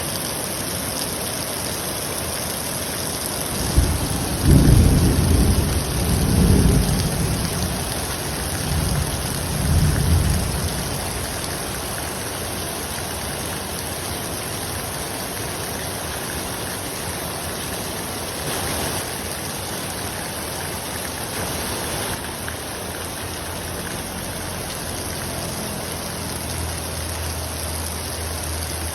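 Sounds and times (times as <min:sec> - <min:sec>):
heavy rain pouring: 0:00.0 - 0:28.9
thunderclap rumbling: 0:03.5 - 0:11.9.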